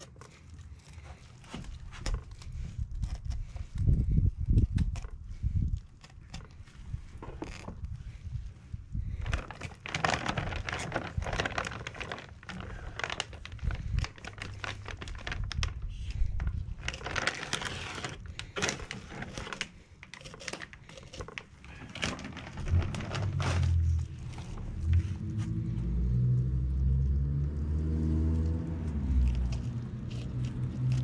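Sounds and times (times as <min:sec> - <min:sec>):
low rumble: 0:07.8 - 0:17.4, 0:22.0 - 0:31.0.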